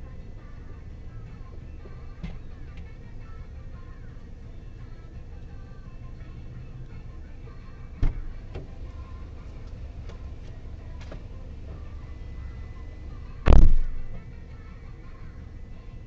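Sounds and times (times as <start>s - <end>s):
low vehicle rumble: 0.0s - 16.0s
sharp knocks: 13.5s - 14.2s
heavy thump: 13.5s - 14.3s.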